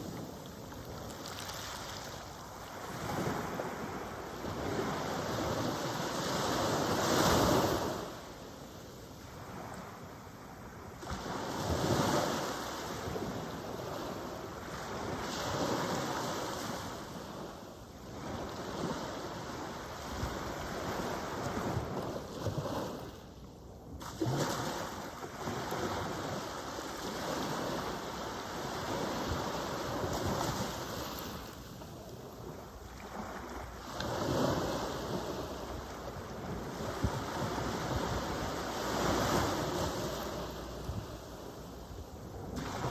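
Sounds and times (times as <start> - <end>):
ocean surf breaking on beach: 0.0 - 8.4, 24.0 - 42.9.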